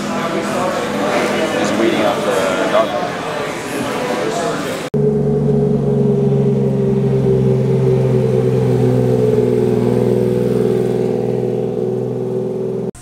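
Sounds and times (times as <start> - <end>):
car engine running at low revs: 5.0 - 13.0.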